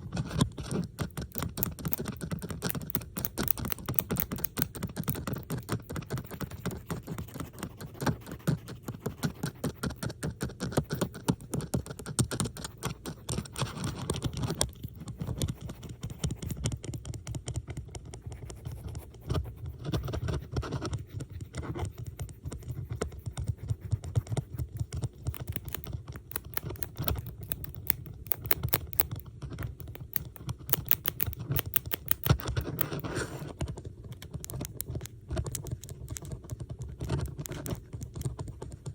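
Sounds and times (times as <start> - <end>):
metal bobby pins clicking: 1.3 - 5.4, 25.2 - 29.2, 29.8 - 33.0.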